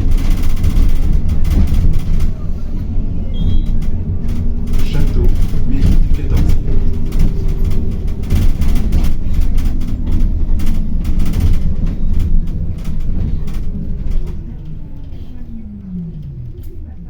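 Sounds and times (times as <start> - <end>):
rattles and knocks from bus body: 0.0 - 16.7
bus low rumble: 0.0 - 17.0.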